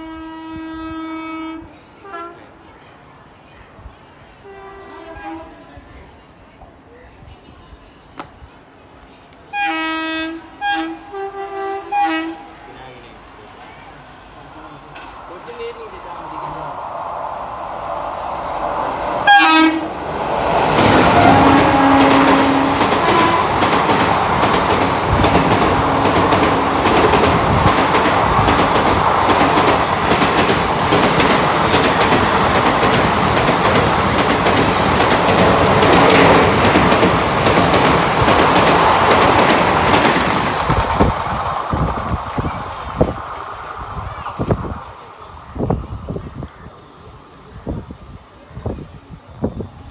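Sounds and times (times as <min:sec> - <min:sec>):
locomotive horn blasts: 0:00.0 - 0:02.4, 0:04.5 - 0:05.6, 0:09.5 - 0:12.6, 0:19.2 - 0:19.9, 0:21.1 - 0:23.6
train coaches rushing past: 0:00.0 - 0:49.9
clickety-clack of wheels: 0:20.8 - 0:42.5.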